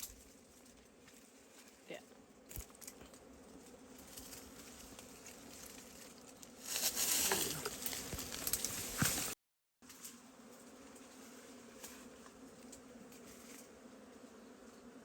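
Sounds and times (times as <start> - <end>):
bees buzzing: 0.3 - 9.4, 10.0 - 15.0.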